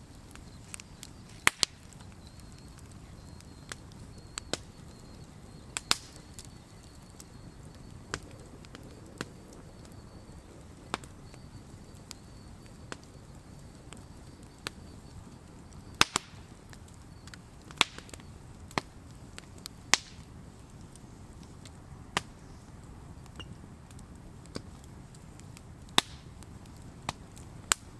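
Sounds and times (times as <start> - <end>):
campfire crackling: 0.0 - 27.9
low rumble of fire: 0.0 - 27.9.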